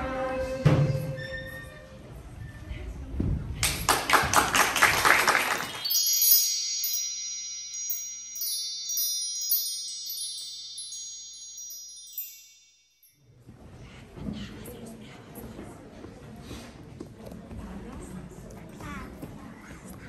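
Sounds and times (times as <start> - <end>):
people clapping: 3.6 - 6.1
high bell-like chimes: 5.2 - 13.3.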